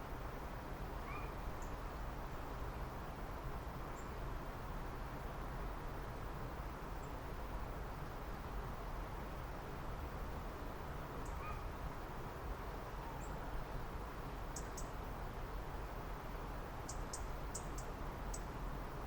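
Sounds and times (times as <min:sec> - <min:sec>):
outdoor ambience hiss and rumble: 0:00.0 - 0:19.0
songbirds chip calls: 0:14.6 - 0:15.0, 0:16.9 - 0:18.5.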